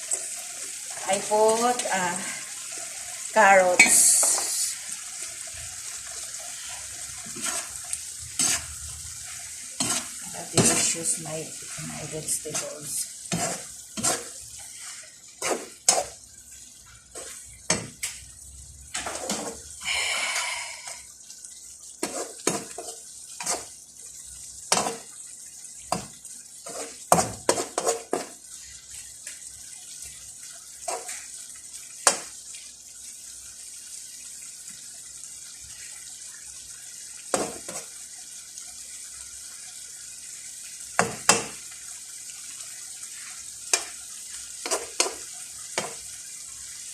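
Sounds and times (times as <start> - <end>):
vegetables sizzling: 0.0 - 46.9
utensil scraping frying pan: 6.3 - 16.2, 26.6 - 28.4, 44.6 - 46.0.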